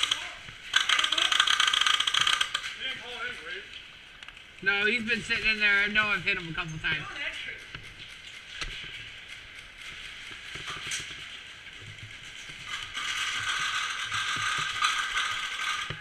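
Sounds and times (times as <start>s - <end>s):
airsoft gun mechanism ratcheting: 0.0s - 2.8s, 12.5s - 16.0s.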